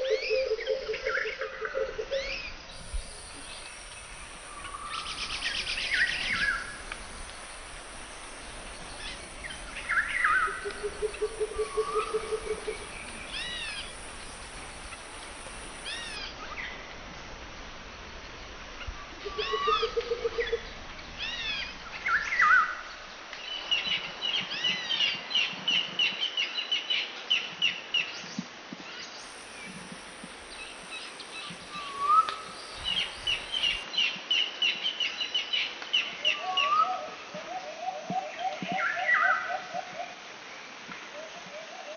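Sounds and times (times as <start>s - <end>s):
birds whistling: 2.2s - 16.2s, 30.5s - 33.8s
bird chattering trills: 8.7s - 16.2s.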